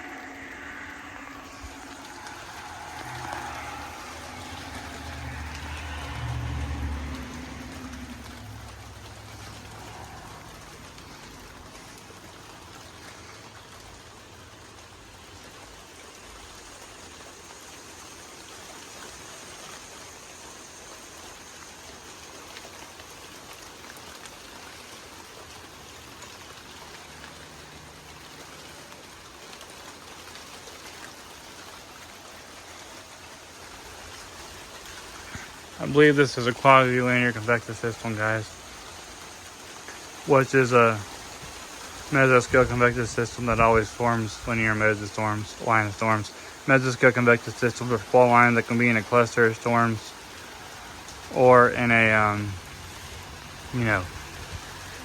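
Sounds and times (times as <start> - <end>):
low rumble: 0.0 - 12.1
rain falling: 0.0 - 55.0.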